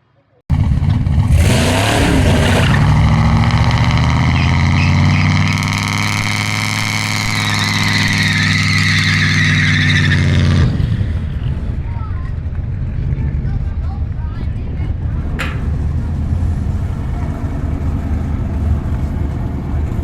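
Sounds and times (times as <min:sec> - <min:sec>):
car engine at high revs: 0:00.5 - 0:11.8.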